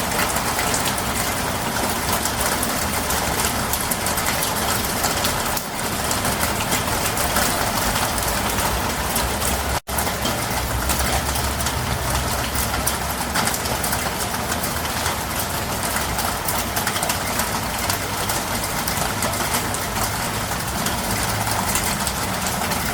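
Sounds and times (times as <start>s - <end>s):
heavy rain pouring: 0.0s - 22.9s.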